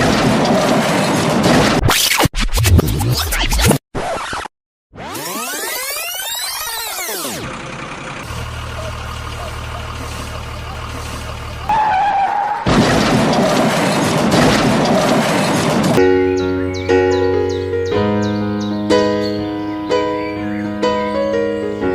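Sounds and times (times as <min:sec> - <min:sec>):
diesel machinery humming: 0:06.7 - 0:21.9
piano music: 0:16.0 - 0:21.9.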